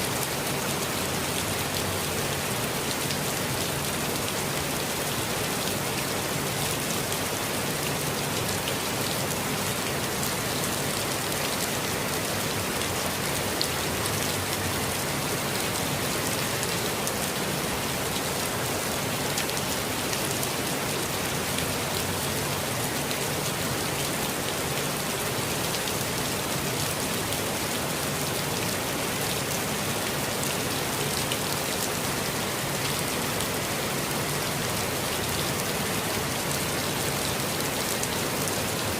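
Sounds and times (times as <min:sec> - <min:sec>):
steady rainfall: 0:00.0 - 0:38.9.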